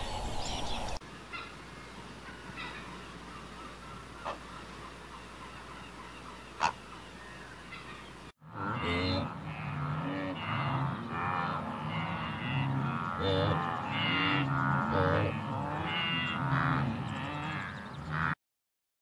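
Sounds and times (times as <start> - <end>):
cattle lowing: 8.4 - 18.4.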